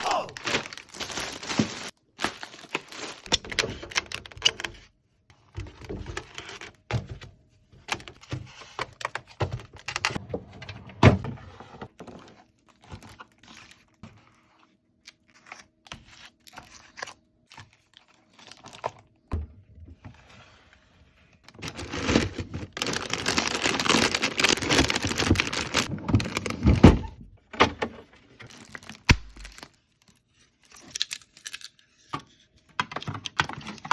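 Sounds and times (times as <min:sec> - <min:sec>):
plastic bags rustling: 0:00.0 - 0:04.3, 0:21.5 - 0:27.2, 0:28.2 - 0:29.8.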